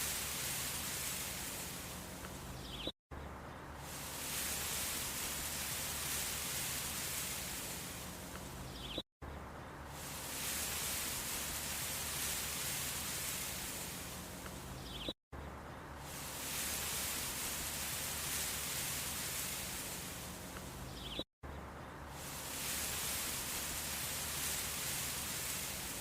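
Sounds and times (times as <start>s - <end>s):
background hiss: 0.0s - 26.0s.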